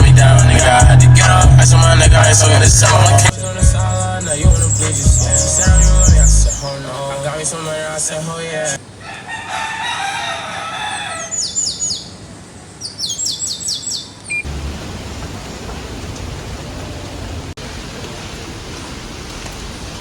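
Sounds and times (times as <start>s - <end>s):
rain hissing: 0.0s - 8.8s, 14.4s - 20.0s
small bird chirping: 3.8s - 6.8s, 11.3s - 12.2s, 12.8s - 14.5s.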